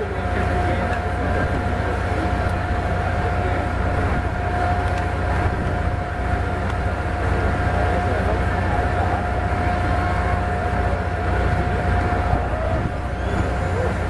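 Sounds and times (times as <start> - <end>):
high mechanical whine: 0.0 - 14.0.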